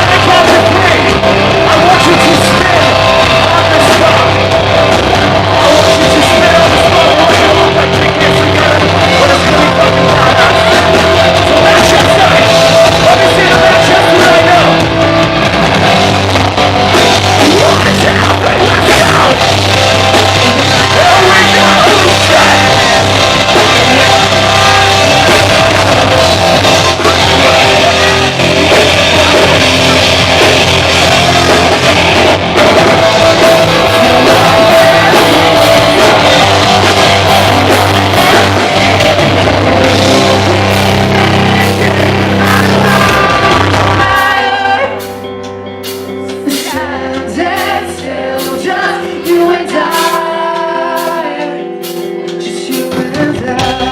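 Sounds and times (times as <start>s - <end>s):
sung and yelled vocals: 0.0s - 45.4s, 46.2s - 53.9s
live rock band playing: 0.0s - 53.9s.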